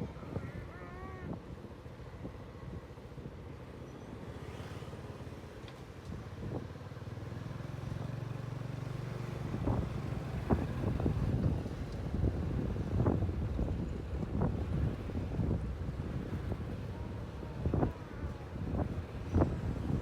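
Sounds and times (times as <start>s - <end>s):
wind buffeting microphone: 9.4s - 20.0s.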